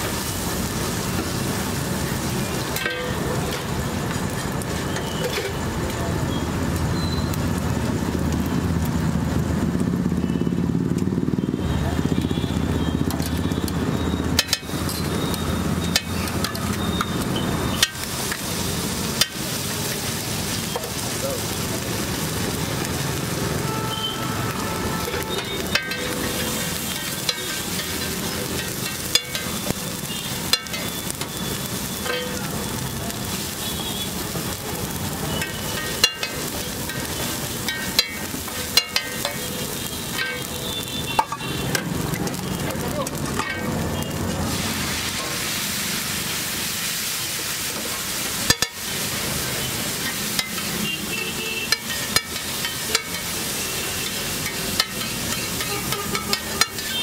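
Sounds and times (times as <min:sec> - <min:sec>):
egg sizzling on a griddle: 0:00.0 - 0:57.0
spatula clacking on griddle: 0:02.6 - 0:03.7, 0:14.3 - 0:21.0, 0:25.0 - 0:32.6, 0:34.9 - 0:43.8, 0:48.3 - 0:49.1, 0:49.8 - 0:57.0
spatula chopping and scraping: 0:51.7 - 0:53.4, 0:54.0 - 0:57.0.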